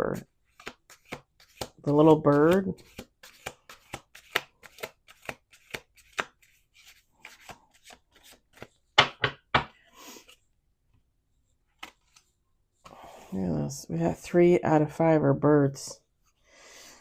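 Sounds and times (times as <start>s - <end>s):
cards being shuffled: 0.1s - 9.2s, 11.7s - 12.3s.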